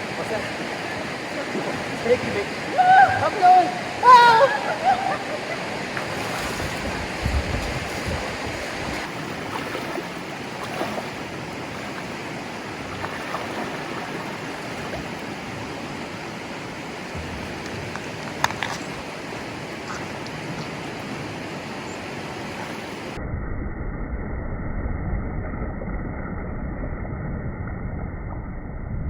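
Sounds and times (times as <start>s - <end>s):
rushing water: 0.0s - 23.2s
wind buffeting microphone: 0.0s - 23.2s.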